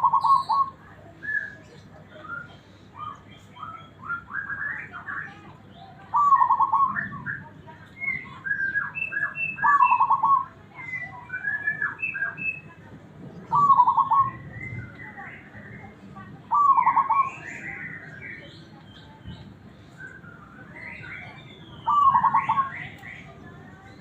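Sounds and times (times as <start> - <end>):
dove cooing: 0.0 - 0.8, 6.1 - 7.3, 9.6 - 10.6, 13.5 - 14.4, 16.5 - 17.8, 21.8 - 23.0.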